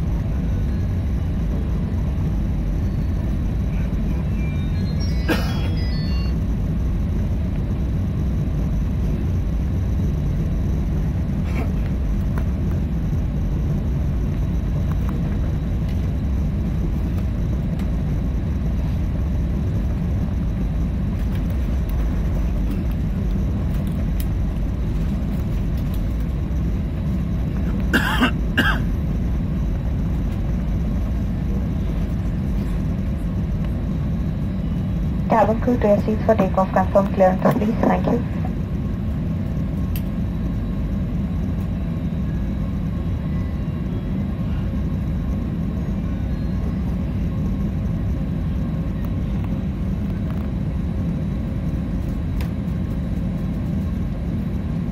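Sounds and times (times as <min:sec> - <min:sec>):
airplane cabin drone: 0:00.0 - 0:54.9
person coughing: 0:05.3 - 0:05.8, 0:11.4 - 0:11.8, 0:27.9 - 0:28.9.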